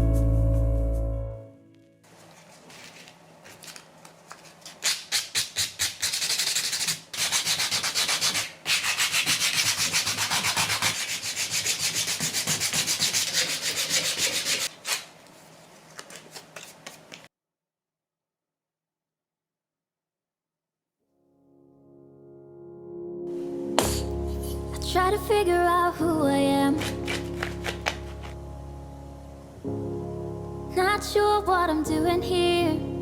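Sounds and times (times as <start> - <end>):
sandpaper rubbing wood: 4.7 - 15.1, 26.8 - 28.4.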